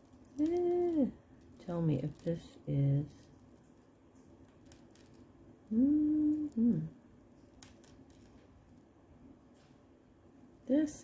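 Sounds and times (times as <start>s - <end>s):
jewelry clicking: 0.0s - 6.6s, 7.3s - 8.9s
woman humming: 5.7s - 7.0s.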